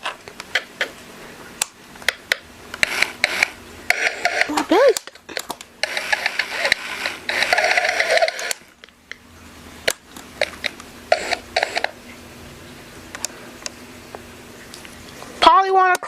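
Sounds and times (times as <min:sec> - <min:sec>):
sharp mechanical clicks: 0:01.6 - 0:08.9
toy hissy buzzing noise: 0:02.3 - 0:05.1, 0:05.8 - 0:08.8, 0:10.4 - 0:12.0.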